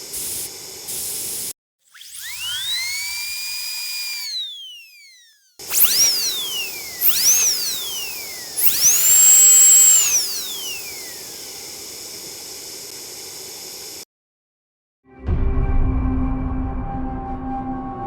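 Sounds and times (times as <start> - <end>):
steady hiss: 0.0 - 1.5, 11.2 - 14.0
dental drill whining: 0.0 - 14.1.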